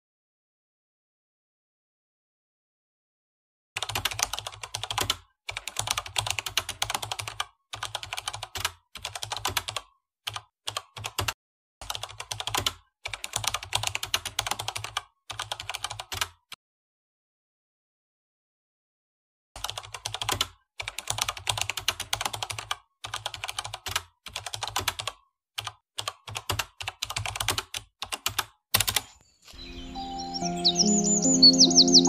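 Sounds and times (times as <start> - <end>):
keyboard typing: 3.8 - 16.5, 19.6 - 29.2.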